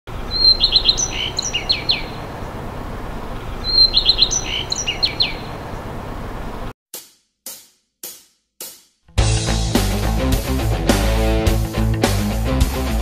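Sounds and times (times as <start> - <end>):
low outdoor hum: 0.1 - 6.7
songbird singing: 0.1 - 6.7.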